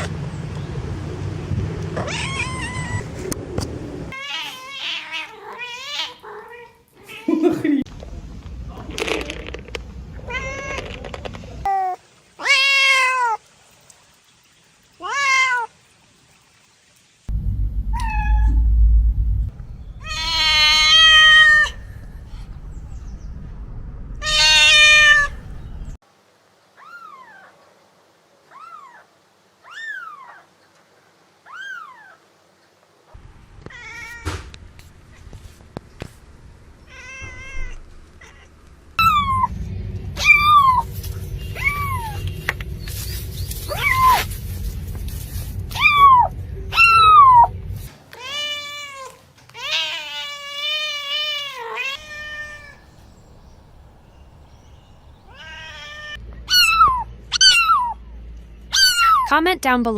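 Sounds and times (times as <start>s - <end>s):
cats meowing: 2.0s - 3.1s, 4.1s - 7.4s, 20.0s - 21.8s, 24.2s - 25.4s, 36.9s - 39.5s, 41.5s - 42.3s, 43.7s - 44.3s, 45.7s - 47.5s, 48.1s - 52.9s, 55.3s - 58.0s, 58.7s - 59.3s.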